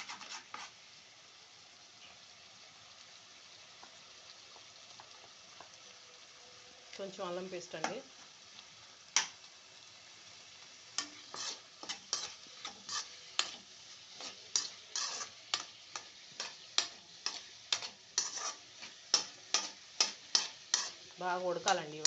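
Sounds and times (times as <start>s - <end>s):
utensil scraping a pan: 0.0s - 0.8s, 11.0s - 21.8s
faint sizzle: 0.0s - 22.0s.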